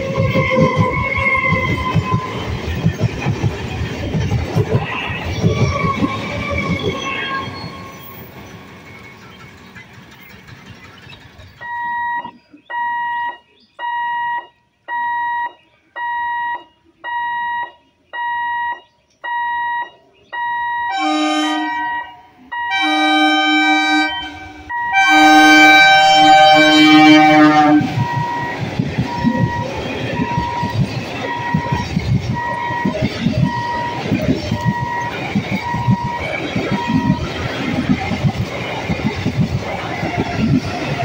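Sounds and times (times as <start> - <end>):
train wheels rumbling on rail: 0.0 - 12.6, 22.5 - 41.0
level-crossing warning beeper: 11.6 - 37.8
train horn blasts: 20.8 - 28.5.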